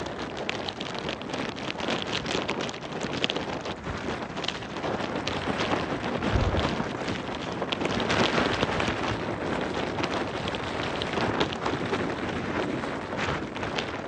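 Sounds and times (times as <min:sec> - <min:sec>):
blizzard wind rushing: 0:06.2 - 0:07.2
snow ticking: 0:06.2 - 0:07.8.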